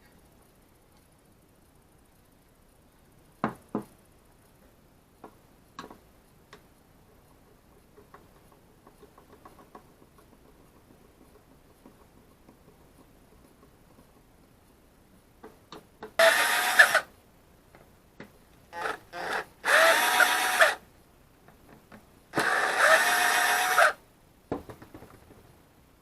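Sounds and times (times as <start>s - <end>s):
small clicks and knocks: 5.2s - 14.4s, 24.5s - 25.5s
power drill motor whine: 16.2s - 17.1s, 18.8s - 20.8s, 22.4s - 24.0s.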